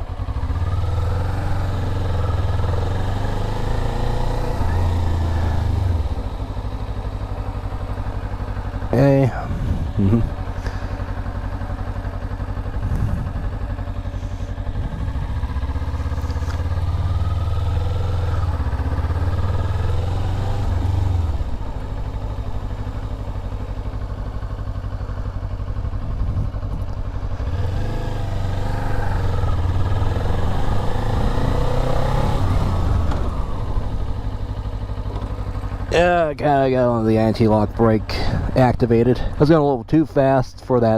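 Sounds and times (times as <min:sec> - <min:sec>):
motorcycle engine accelerating: 0:00.0 - 0:39.4
motorcycle braking hard: 0:12.8 - 0:17.4.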